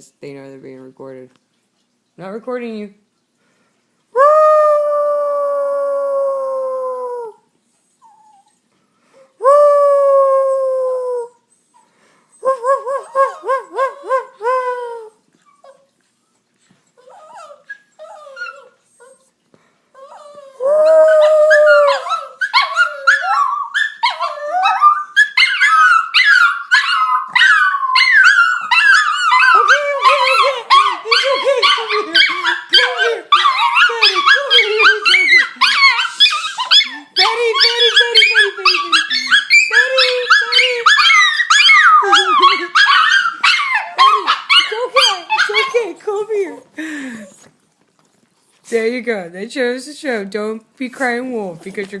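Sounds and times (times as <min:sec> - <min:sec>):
dogs howling: 0:20.1 - 0:45.9.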